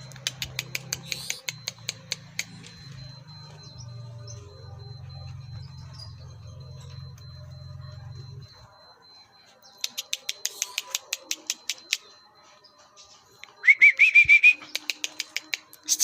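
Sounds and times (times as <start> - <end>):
bird ticking calls: 0.0 - 8.0, 9.6 - 12.3, 13.4 - 16.0
bird wavering whistle: 13.6 - 16.0.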